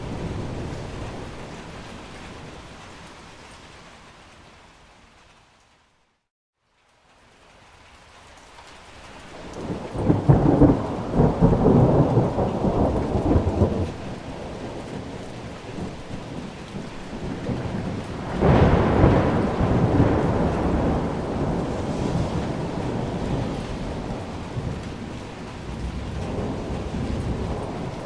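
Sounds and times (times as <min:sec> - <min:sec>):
steady rain: 0:00.0 - 0:28.0
rolling thunder: 0:09.5 - 0:28.0.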